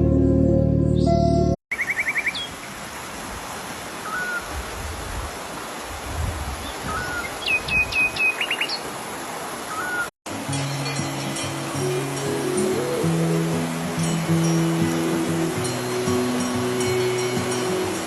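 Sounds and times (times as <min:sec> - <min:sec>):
music: 0:00.0 - 0:01.6, 0:10.3 - 0:18.0
songbirds calling: 0:01.7 - 0:02.7, 0:04.0 - 0:04.6, 0:06.6 - 0:09.0, 0:09.6 - 0:10.1
steady background hiss: 0:08.9 - 0:18.0.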